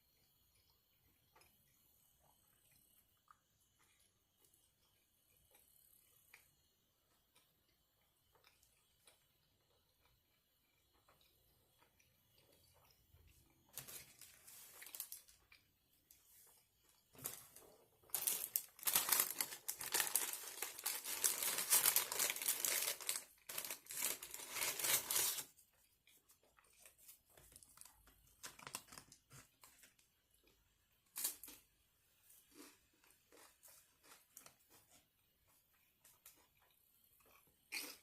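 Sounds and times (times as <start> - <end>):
wrapper crumpling and tearing: 13.8 - 15.4, 18.1 - 25.5, 27.4 - 29.2.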